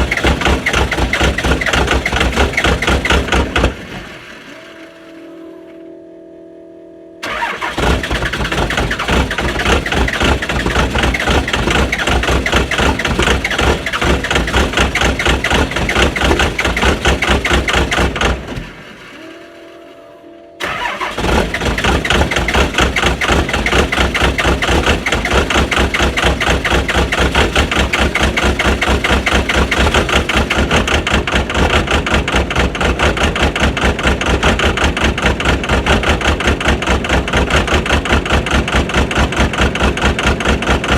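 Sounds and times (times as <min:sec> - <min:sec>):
diesel engine starting and running: 0:00.0 - 0:05.9, 0:06.9 - 0:40.9.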